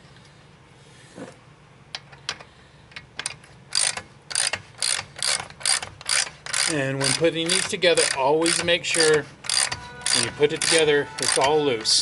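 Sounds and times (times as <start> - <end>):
ratchet wrench clicking: 3.2 - 12.0.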